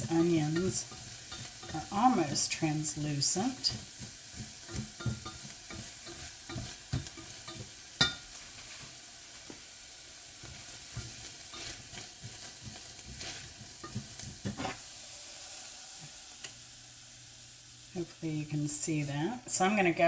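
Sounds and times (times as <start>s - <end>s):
utensil scraping a pan: 0.0s - 9.0s, 10.4s - 15.0s
onions sizzling in a pan: 0.0s - 20.0s.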